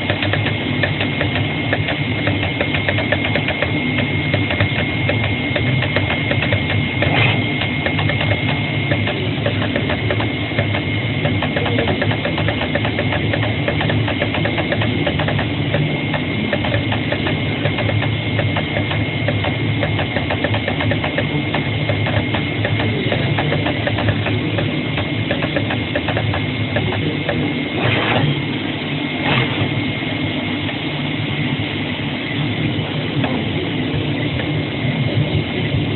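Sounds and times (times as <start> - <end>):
cutting head ticking rapidly: 0.0 - 27.6
machine high whine: 0.0 - 35.9.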